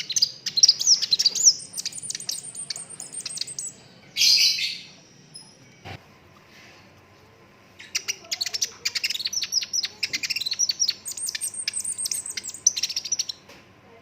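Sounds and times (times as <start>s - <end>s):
bird singing rapid trills: 0.0s - 5.6s, 7.8s - 13.4s.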